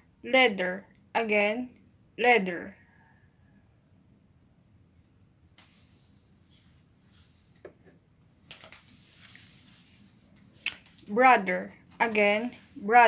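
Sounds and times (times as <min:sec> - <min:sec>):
soft rustling: 0:05.5 - 0:11.2, 0:12.0 - 0:13.0.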